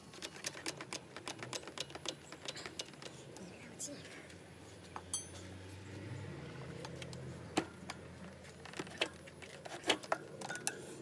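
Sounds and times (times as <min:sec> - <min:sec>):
ringing metallic ping: 0:05.1 - 0:05.4
metal tools clinking and knocking: 0:05.1 - 0:05.5.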